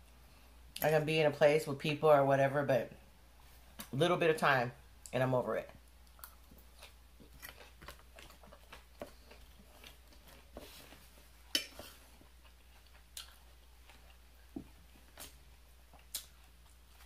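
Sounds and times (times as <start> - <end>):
chewing crisp salad: 5.8 - 17.0.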